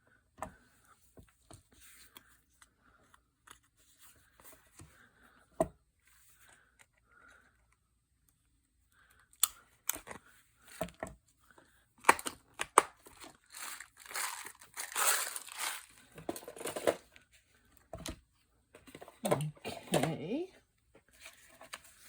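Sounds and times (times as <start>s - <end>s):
paper crinkling and rustling: 12.0s - 17.1s.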